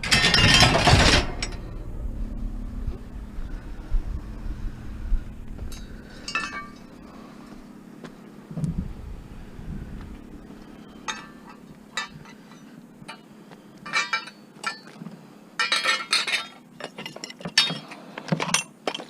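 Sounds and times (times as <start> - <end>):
glass and junk clinking: 0.0 - 1.7, 5.7 - 6.9, 11.0 - 13.2, 13.8 - 15.0, 15.6 - 19.0.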